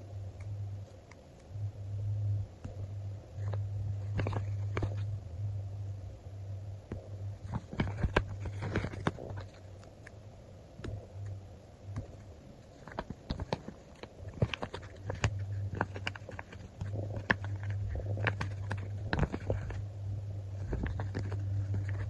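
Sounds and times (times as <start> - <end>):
low hum: 0.0 - 22.0
crackly paper rustles: 3.4 - 5.1, 7.4 - 10.0, 12.0 - 19.8, 20.5 - 22.0
stickers peeling and clicking: 11.9 - 19.8, 20.5 - 22.0.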